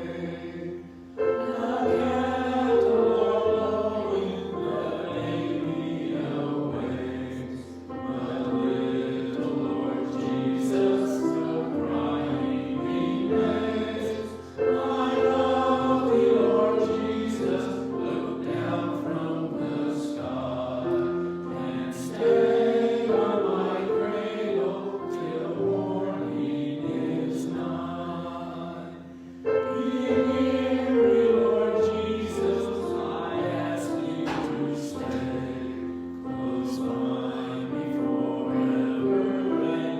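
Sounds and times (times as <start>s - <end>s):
choir singing sacred music: 0.0s - 39.9s.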